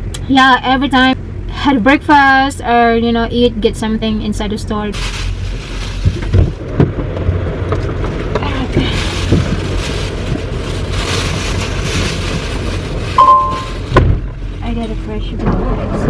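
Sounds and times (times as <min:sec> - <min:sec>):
brief beep: 0:13.2 - 0:13.7.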